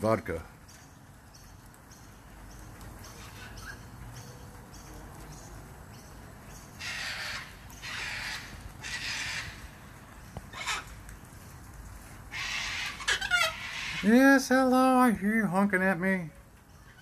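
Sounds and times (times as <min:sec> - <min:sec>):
cockatoo screeching: 0:06.8 - 0:09.6, 0:10.5 - 0:10.9, 0:12.3 - 0:14.2.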